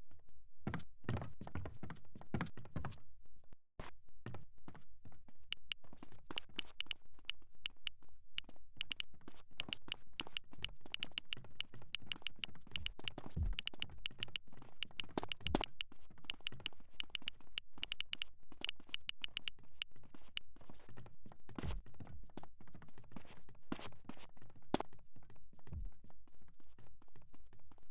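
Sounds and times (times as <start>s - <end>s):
sharp taps: 8.8s - 9.0s, 9.6s - 19.5s.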